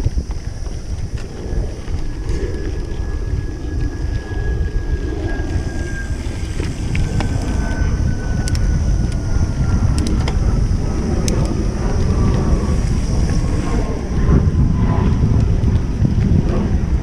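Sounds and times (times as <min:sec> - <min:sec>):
wind buffeting microphone: 0:00.0 - 0:17.0
bike rattling clicks: 0:06.4 - 0:13.4.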